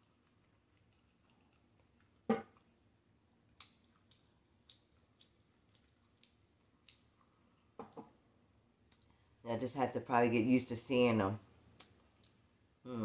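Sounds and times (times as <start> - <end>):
wet mouth clicks and smacks: 3.6 - 7.3.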